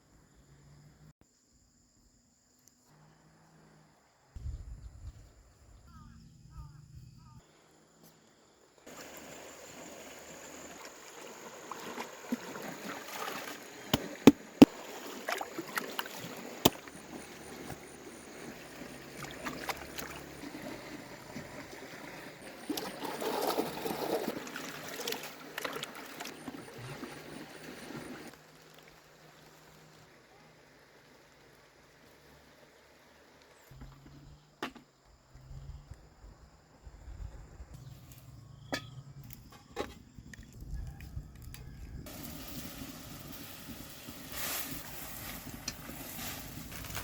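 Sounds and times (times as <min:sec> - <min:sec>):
water splashing and trickling: 0:08.8 - 0:33.6, 0:40.3 - 0:47.0.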